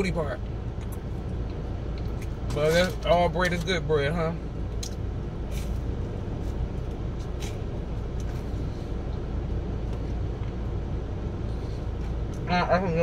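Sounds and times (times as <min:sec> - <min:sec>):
car engine idling: 0:00.0 - 0:13.0
person chewing bread: 0:04.6 - 0:12.4.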